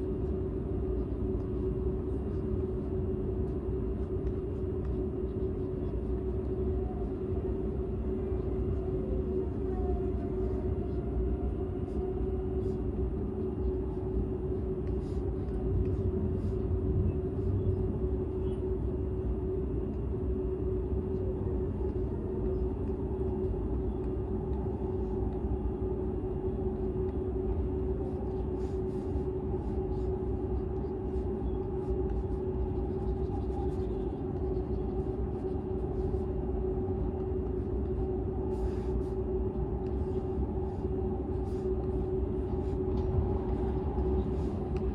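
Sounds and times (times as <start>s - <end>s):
constant hum tone: 0.0s - 44.9s
train interior rumble: 42.5s - 44.9s.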